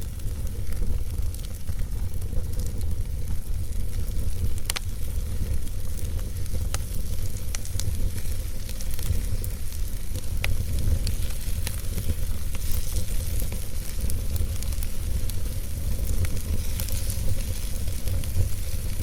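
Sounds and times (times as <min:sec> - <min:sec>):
fire crackling and popping: 0:00.0 - 0:19.0
wood fire rumbling and hissing: 0:00.0 - 0:19.0.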